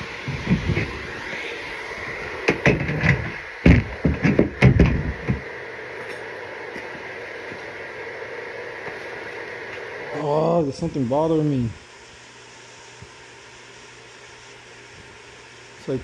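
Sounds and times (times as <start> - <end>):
objects knocking and clattering: 2.5 - 5.4.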